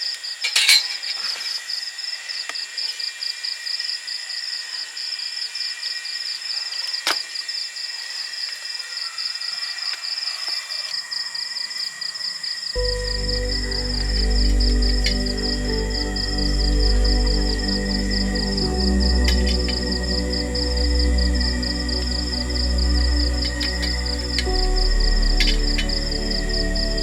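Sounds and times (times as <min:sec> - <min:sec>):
insects chirping: 0:00.0 - 0:27.0
continuous high tones: 0:12.1 - 0:27.0.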